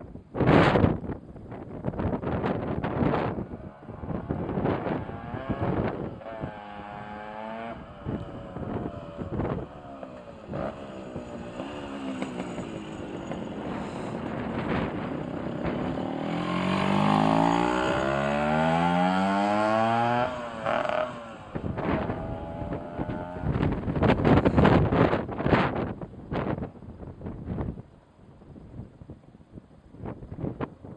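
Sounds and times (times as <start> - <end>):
moped engine revving: 2.9 - 25.2.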